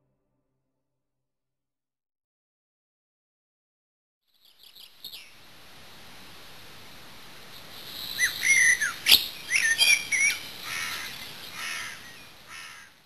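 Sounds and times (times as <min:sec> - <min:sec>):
small birds chirping: 0:04.3 - 0:05.5, 0:07.6 - 0:12.9
steady hiss: 0:04.4 - 0:13.0.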